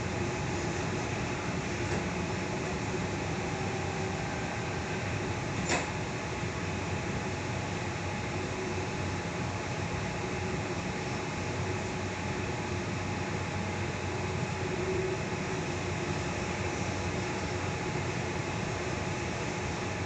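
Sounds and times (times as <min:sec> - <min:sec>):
train wheels rumbling on track: 0:00.0 - 0:08.4
faint steady hum: 0:00.0 - 0:20.0.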